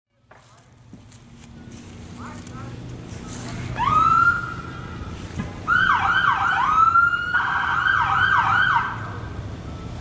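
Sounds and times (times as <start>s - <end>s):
siren yelping: 3.3s - 10.0s.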